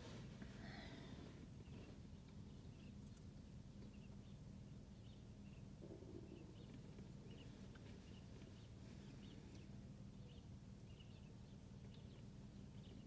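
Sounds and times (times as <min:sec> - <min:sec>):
low steady hum: 0:00.0 - 0:13.0
birds chirping: 0:00.6 - 0:13.0.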